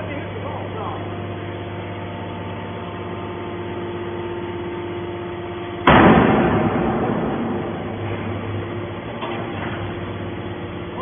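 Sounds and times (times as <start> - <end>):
hydraulic baler humming: 0.0 - 11.0
loud scrap metal crash: 5.8 - 9.9.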